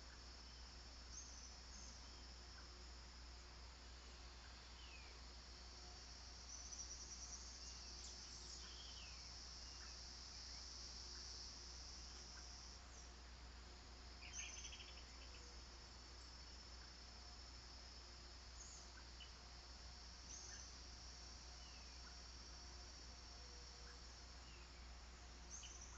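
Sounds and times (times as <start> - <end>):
faint bird chirps: 0.0 - 2.8, 6.4 - 11.3, 14.2 - 16.9, 18.5 - 19.5, 20.2 - 22.3, 23.4 - 25.9
insects chirping: 0.0 - 25.9.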